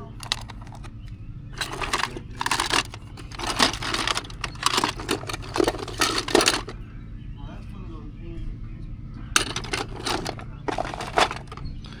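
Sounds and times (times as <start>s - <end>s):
objects rustling and clattering: 0.0s - 6.8s, 9.4s - 12.0s.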